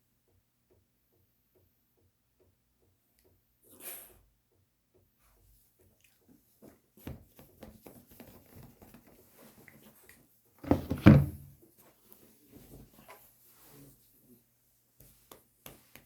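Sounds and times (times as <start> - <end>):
thump: 10.6 - 11.5.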